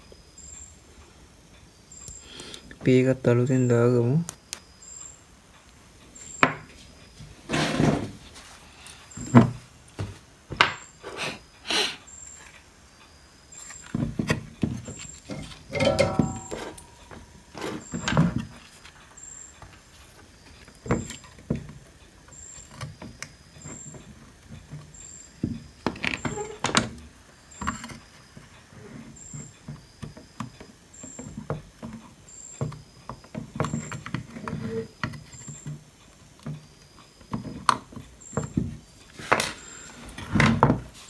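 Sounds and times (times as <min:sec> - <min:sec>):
hand tools clicking on circuit board: 0:04.2 - 0:04.6.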